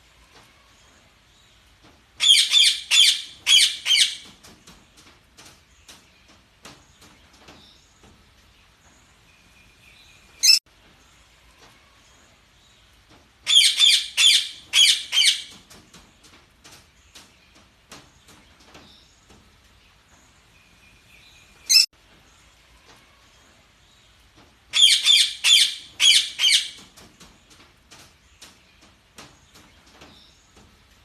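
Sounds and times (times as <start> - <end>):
budgerigars chirping and squawking: 2.2 - 4.3, 13.5 - 15.6, 24.8 - 26.8.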